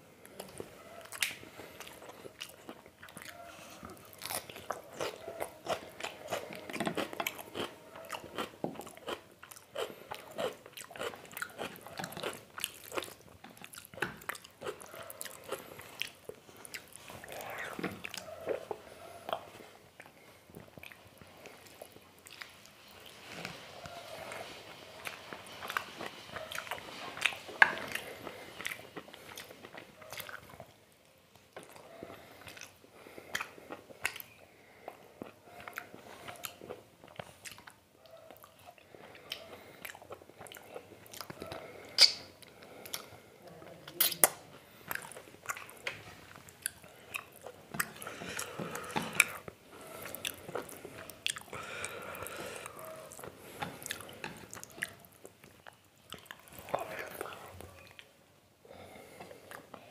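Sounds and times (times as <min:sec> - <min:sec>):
person chewing with wet mouth sounds: 0:00.2 - 0:59.9
wet mouth clicks: 0:41.1 - 0:43.1.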